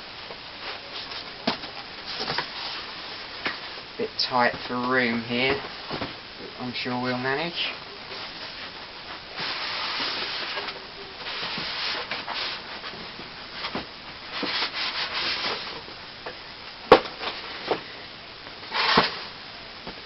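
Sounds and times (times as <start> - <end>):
cardboard box sliding and rubbing: 9.4 - 13.0, 13.6 - 15.8, 18.7 - 19.2.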